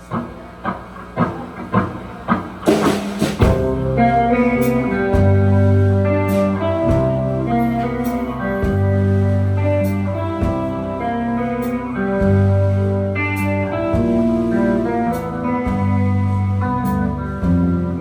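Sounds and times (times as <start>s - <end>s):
sharp drum hits: 0.0s - 4.1s
live band playing: 0.0s - 18.0s.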